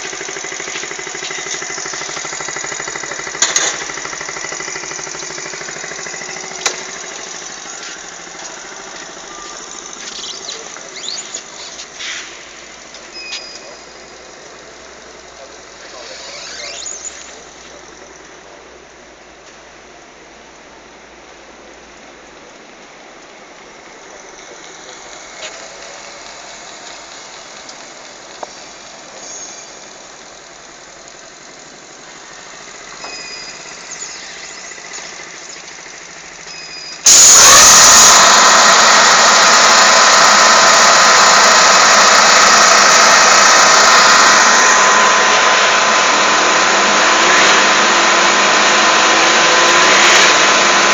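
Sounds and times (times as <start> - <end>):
loud steady machine noise: 0.0 - 13.0, 23.7 - 29.2, 29.8 - 50.9.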